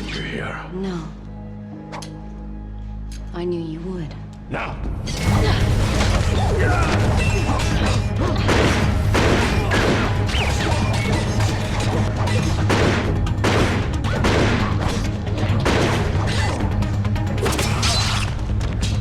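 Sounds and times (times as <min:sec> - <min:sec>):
low droning music score: 0:00.0 - 0:19.0.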